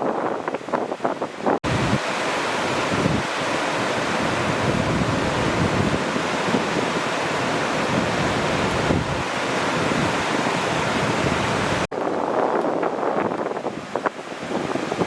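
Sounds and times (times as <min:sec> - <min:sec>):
ocean surf washing: 0:00.0 - 0:15.0
wind buffeting microphone: 0:00.0 - 0:15.0.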